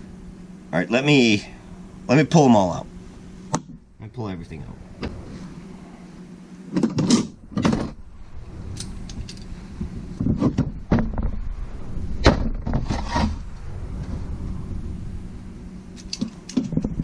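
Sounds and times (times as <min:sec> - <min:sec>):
metal engine parts clinking: 0:08.7 - 0:09.5.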